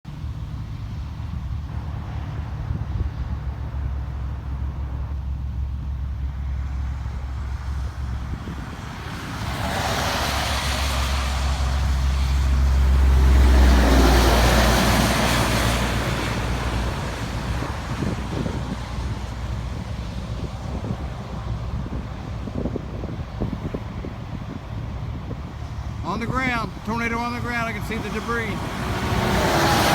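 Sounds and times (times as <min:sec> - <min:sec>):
road traffic rumble: 0:00.0 - 0:29.9
vehicle passing close by: 0:06.1 - 0:29.9.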